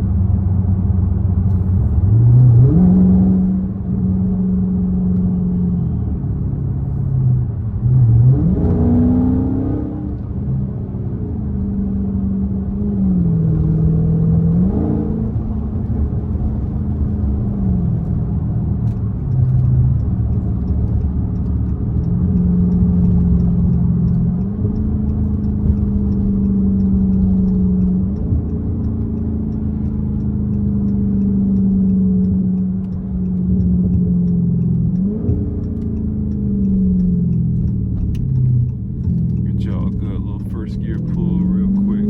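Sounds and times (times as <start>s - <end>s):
car exhaust revving: 11.1s - 42.0s.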